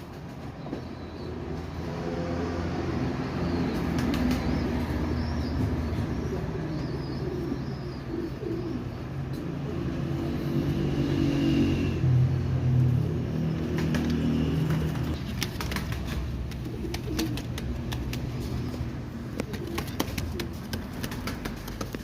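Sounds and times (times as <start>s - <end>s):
pigeons cooing: 3.6s - 22.0s.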